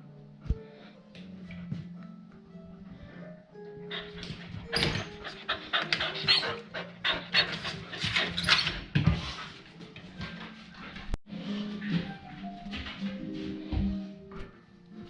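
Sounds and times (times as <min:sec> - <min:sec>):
dog panting: 0:03.8 - 0:11.2.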